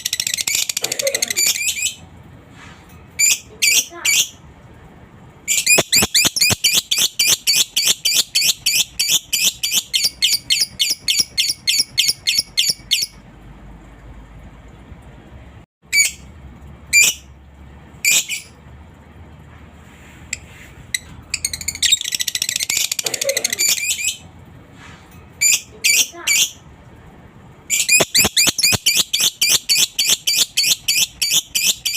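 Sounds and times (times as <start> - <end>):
lovebird shrill calls: 5.5 - 13.1, 27.7 - 31.9.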